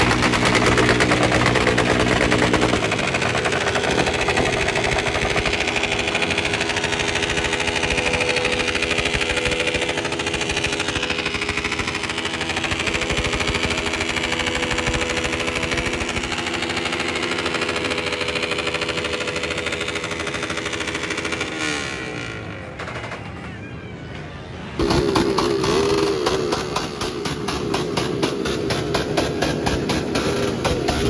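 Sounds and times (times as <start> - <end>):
motorcycle engine running: 0.0 - 23.7, 24.8 - 31.0.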